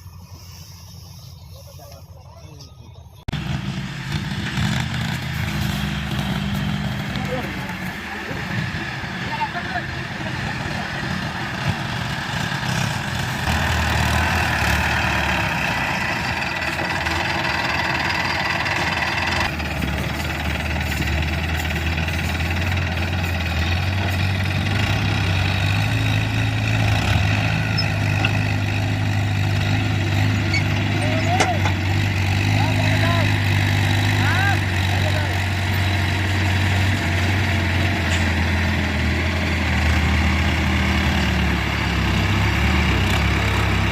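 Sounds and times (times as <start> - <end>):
heavy vehicle engine running: 0.0 - 43.9.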